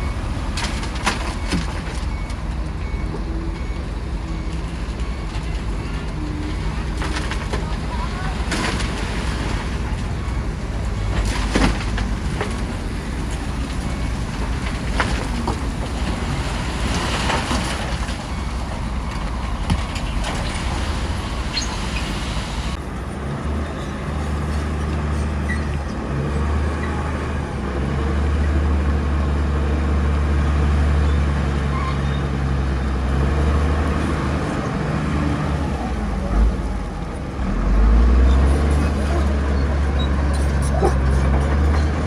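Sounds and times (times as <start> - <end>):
bulldozer engine under load: 0.0 - 42.0
clanking: 5.0 - 22.8.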